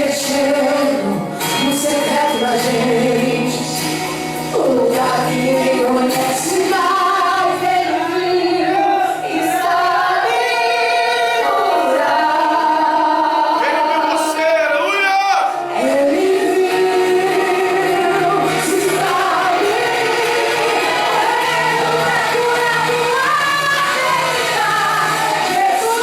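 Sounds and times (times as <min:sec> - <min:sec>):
voices singing a slow hymn: 0:00.0 - 0:03.8, 0:04.5 - 0:14.4, 0:15.5 - 0:26.0
musical accompaniment: 0:00.0 - 0:26.0.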